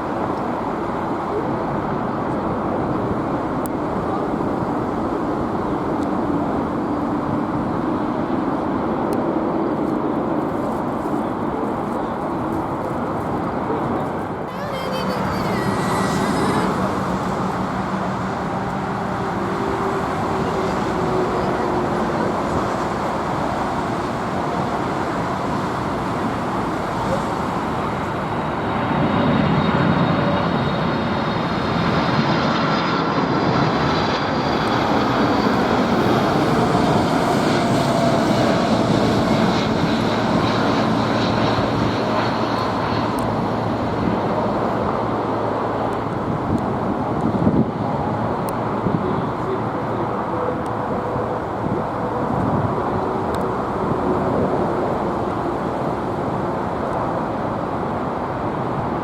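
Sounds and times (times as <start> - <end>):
jet engines rushing: 0.0 - 59.0
high whining tones: 14.5 - 26.4.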